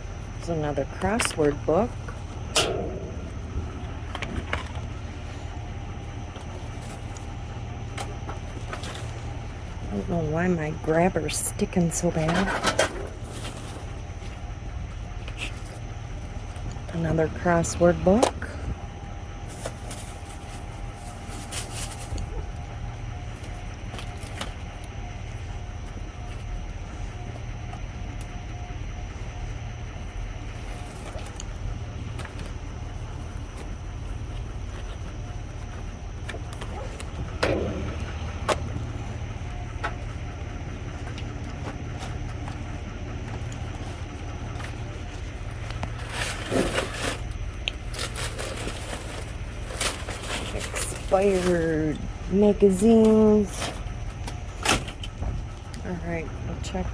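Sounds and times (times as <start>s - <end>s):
faint steady whine: 0.0s - 56.9s
steady low hum: 0.0s - 56.9s
items dropped in a dumpster: 1.0s - 5.7s, 36.2s - 39.0s, 45.8s - 51.8s
low rumble: 1.6s - 7.9s, 35.2s - 44.6s
rustling of bags and papers: 3.1s - 10.1s, 11.3s - 55.7s.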